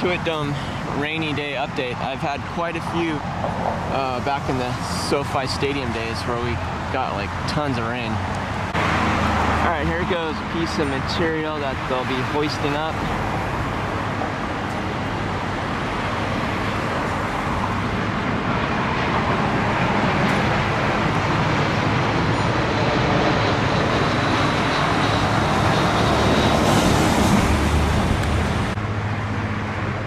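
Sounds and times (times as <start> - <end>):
traffic engines: 0.0 - 30.0.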